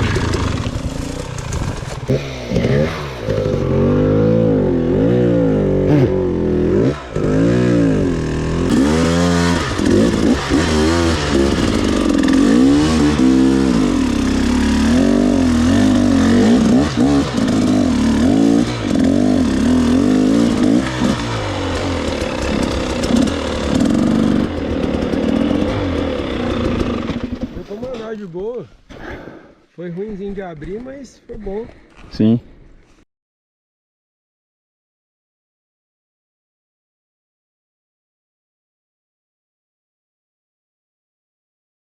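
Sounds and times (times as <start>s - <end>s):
dirt bike engine revving: 0.0s - 27.8s.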